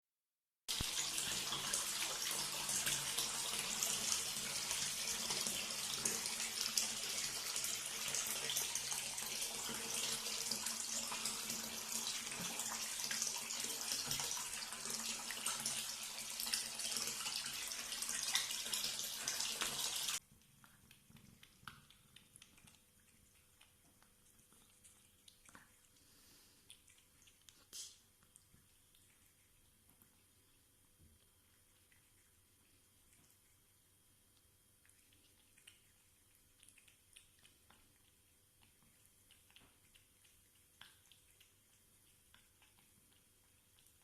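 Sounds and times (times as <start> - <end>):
water running from a tap: 0.7 - 20.2.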